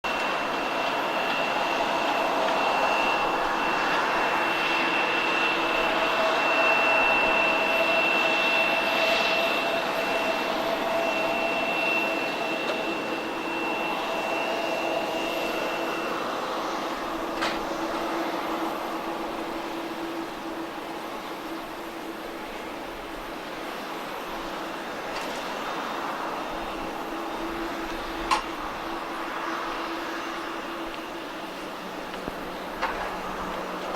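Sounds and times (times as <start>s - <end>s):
jet engines roaring and whining: 0.0s - 33.9s.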